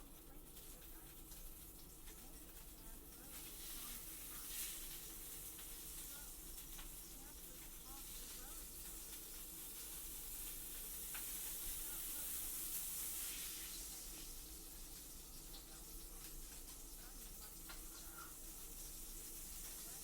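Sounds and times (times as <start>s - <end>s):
food sizzling in a frying pan: 0.0s - 20.0s.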